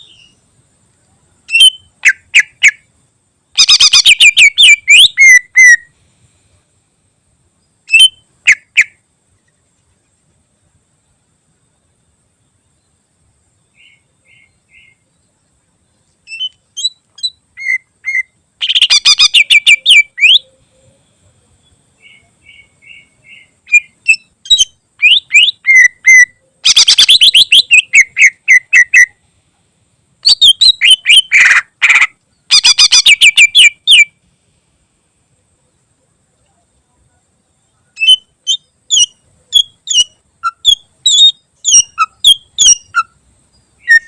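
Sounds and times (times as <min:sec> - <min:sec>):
bird singing rapid sharp notes: 0:01.5 - 0:02.8, 0:03.6 - 0:05.9, 0:16.2 - 0:20.9, 0:21.6 - 0:29.2, 0:30.2 - 0:34.1, 0:37.9 - 0:44.0.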